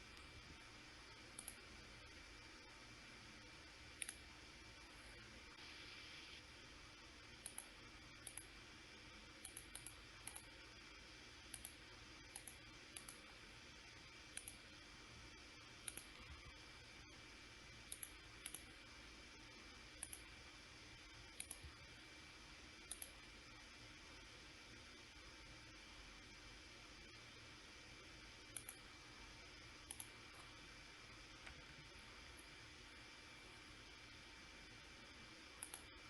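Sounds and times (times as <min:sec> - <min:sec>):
faint steady hum: 0:00.0 - 0:36.0
computer mouse clicking: 0:01.2 - 0:01.6, 0:03.9 - 0:04.3, 0:07.3 - 0:08.5, 0:09.4 - 0:10.6, 0:11.5 - 0:13.3, 0:14.3 - 0:14.7, 0:15.8 - 0:16.5, 0:17.8 - 0:18.8, 0:19.9 - 0:20.4, 0:21.3 - 0:21.8, 0:22.8 - 0:23.2, 0:28.5 - 0:28.9, 0:29.8 - 0:30.6, 0:35.5 - 0:36.0.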